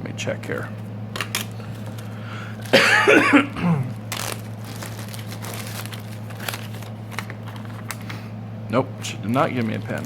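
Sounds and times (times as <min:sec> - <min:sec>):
low electrical hum: 0:00.0 - 0:10.0
man coughing or grunting: 0:02.7 - 0:04.0.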